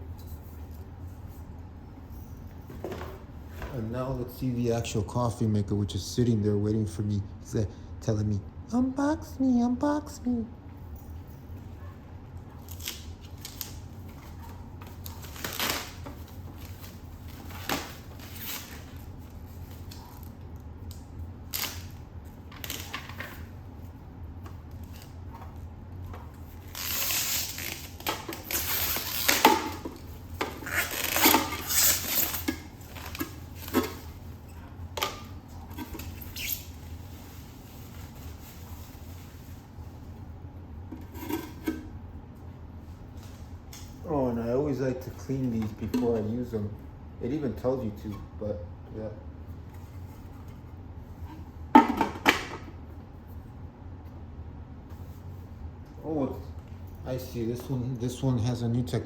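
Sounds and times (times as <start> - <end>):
packaging rustling and scraping: 12.6 - 20.2, 26.2 - 34.5, 35.1 - 40.0.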